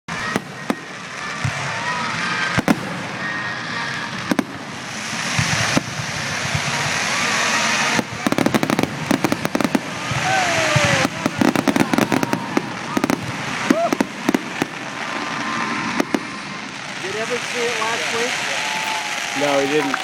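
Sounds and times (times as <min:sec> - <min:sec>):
fireworks crackling: 0:00.1 - 0:20.0.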